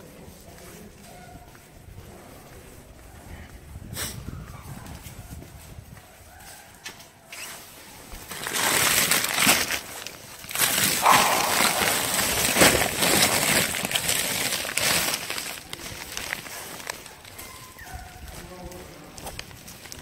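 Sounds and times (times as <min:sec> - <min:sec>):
plastic bag rustling: 0:08.2 - 0:17.2.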